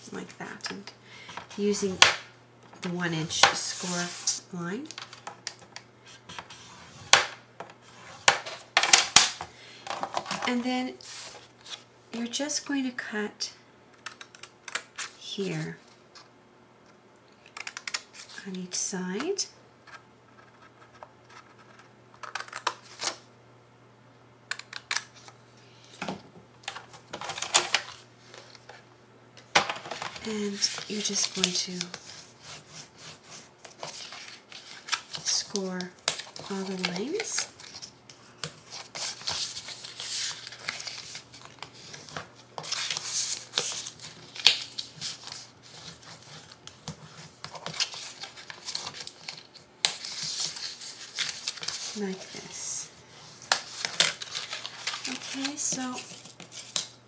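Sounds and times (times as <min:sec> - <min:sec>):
paper handling: 0:29.8 - 0:57.0.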